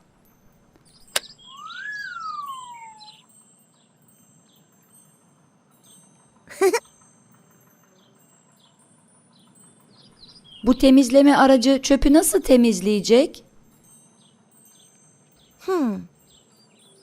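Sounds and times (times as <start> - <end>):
twinkling chimes: 0.0 - 17.0
faint chirps: 0.9 - 5.0
rising and falling whistle tone: 1.2 - 3.3.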